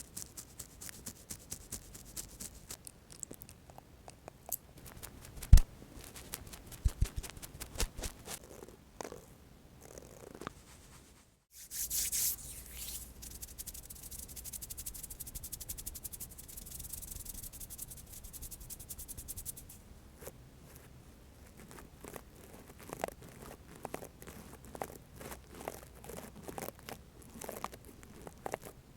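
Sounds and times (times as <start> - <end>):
hands rubbing together: 4.8 - 8.4, 10.5 - 19.8.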